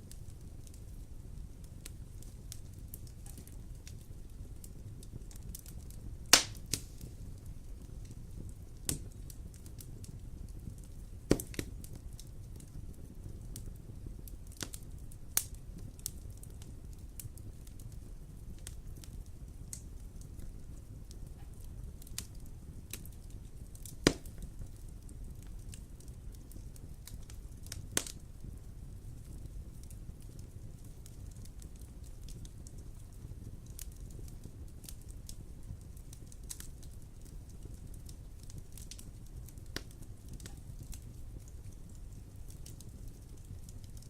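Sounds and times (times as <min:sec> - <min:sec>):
low steady rumble: 0:00.0 - 0:44.0
wood fire crackling: 0:00.0 - 0:44.0
fire popping sharply: 0:01.8 - 0:10.2, 0:10.8 - 0:12.0, 0:22.1 - 0:24.9.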